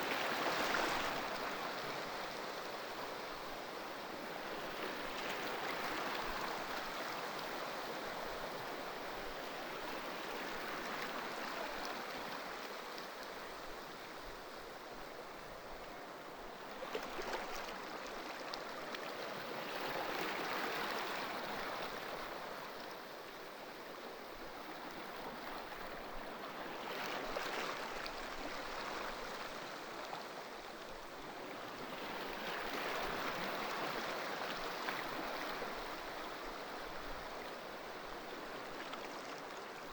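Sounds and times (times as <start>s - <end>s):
ocean waves on shore: 0.0s - 13.6s.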